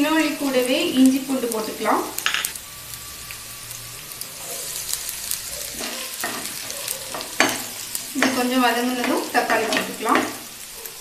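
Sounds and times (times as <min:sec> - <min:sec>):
food sizzling in hot oil: 0:00.0 - 0:11.0
spatula scraping a pan: 0:05.6 - 0:10.6.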